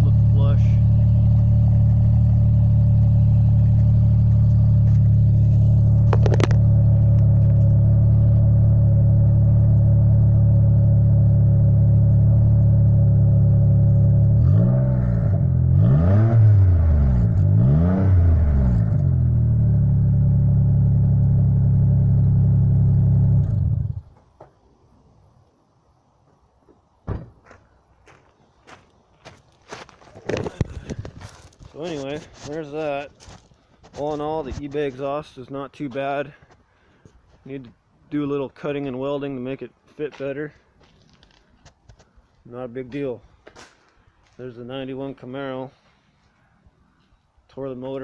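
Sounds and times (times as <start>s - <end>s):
car engine idling and revving: 0.0s - 24.1s.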